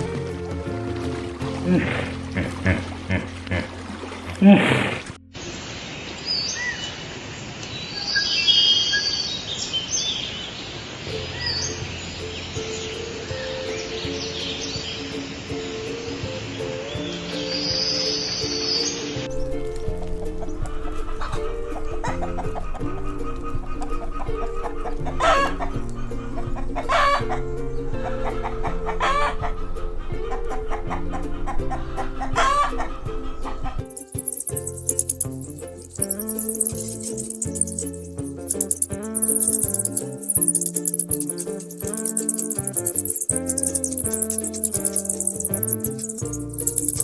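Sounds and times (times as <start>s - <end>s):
steady music tones: 19.3s - 47.0s
small birds chirping: 33.8s - 47.0s.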